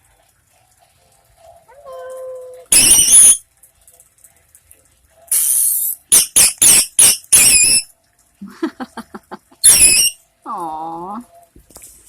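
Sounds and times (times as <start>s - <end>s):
parakeet screaming: 2.7s - 3.4s, 5.4s - 7.9s, 9.6s - 10.2s.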